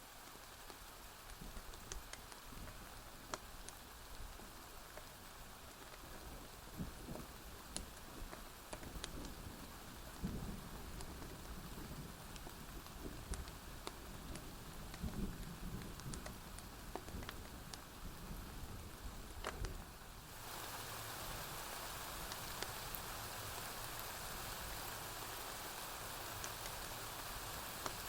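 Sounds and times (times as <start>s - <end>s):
steady rain hiss: 0.0s - 28.0s
wood fire crackling: 0.1s - 28.0s.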